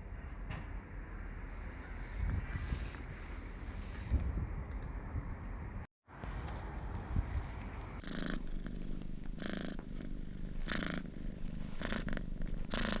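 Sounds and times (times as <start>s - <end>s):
cat purring: 8.0s - 13.0s.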